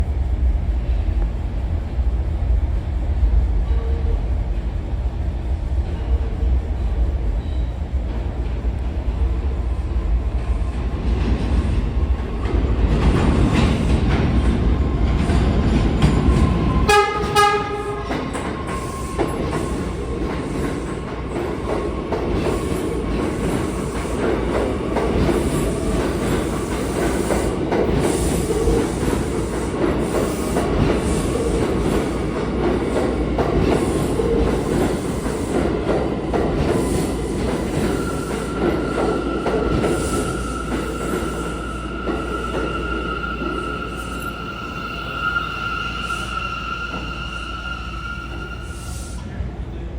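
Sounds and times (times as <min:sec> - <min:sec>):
train wheels rumbling on rail: 0:00.0 - 0:49.9
train horn blast: 0:16.8 - 0:19.0.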